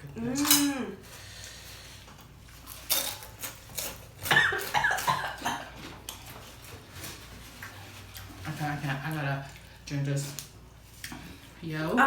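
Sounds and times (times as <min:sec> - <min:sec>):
person coughing: 0:04.3 - 0:05.7.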